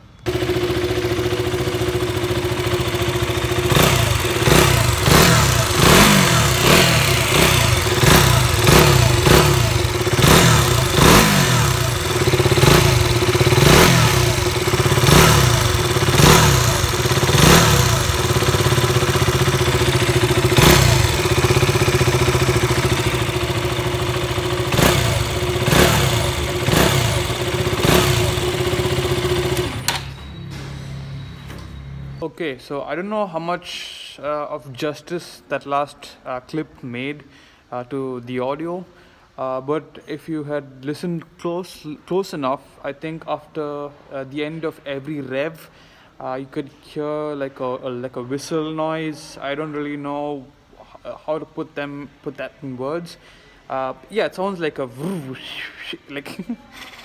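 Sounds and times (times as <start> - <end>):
motorcycle engine revving: 0.2 - 30.1
exhaust rattle: 0.3 - 29.9
whistle: 30.1 - 32.2.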